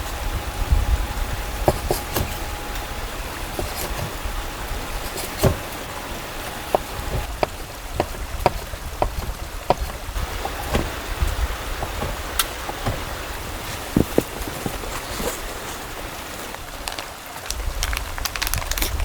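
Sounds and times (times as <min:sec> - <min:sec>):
steady rain: 0:00.0 - 0:19.0
heavy drops tapping on surface: 0:06.7 - 0:14.9.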